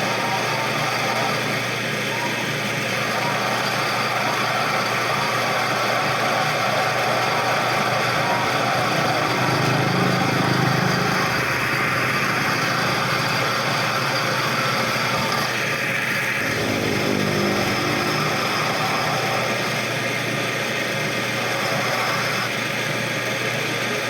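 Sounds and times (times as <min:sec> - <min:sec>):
machine humming: 0:00.0 - 0:24.0.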